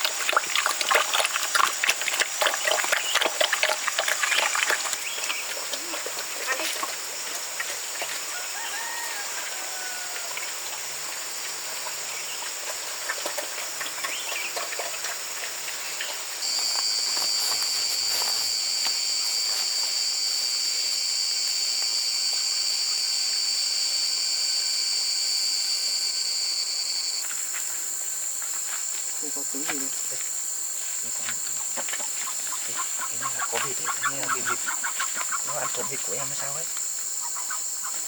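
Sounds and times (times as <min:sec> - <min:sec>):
insects chirring: 0:00.0 - 0:38.0
loud insect drone: 0:00.0 - 0:38.0
faint bird calls: 0:31.1 - 0:36.5.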